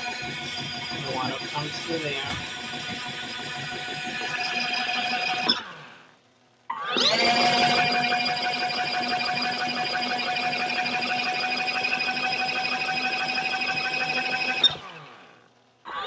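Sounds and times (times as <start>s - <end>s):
electric motor whining: 0.0s - 6.0s, 6.9s - 15.2s.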